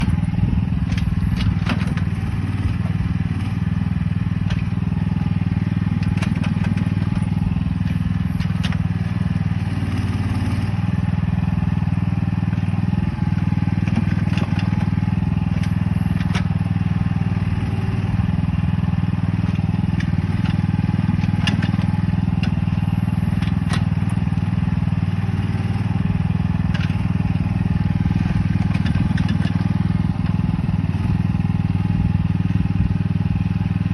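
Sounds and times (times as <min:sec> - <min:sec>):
excavator engine running: 0:00.0 - 0:33.9
sharp knocks and clanks: 0:20.0 - 0:22.6, 0:28.4 - 0:29.7.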